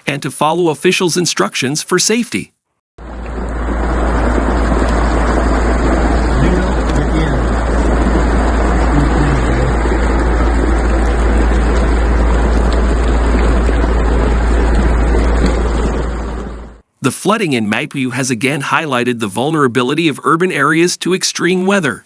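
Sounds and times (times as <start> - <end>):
floodwater rushing: 3.0 - 16.8
faint voice: 6.4 - 7.5, 8.9 - 9.9.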